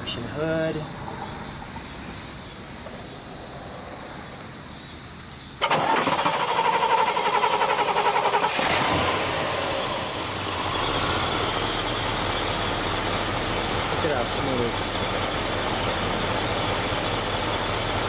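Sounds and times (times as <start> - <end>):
starter motor cranking: 5.6 - 9.4
car engine idling: 5.6 - 18.0.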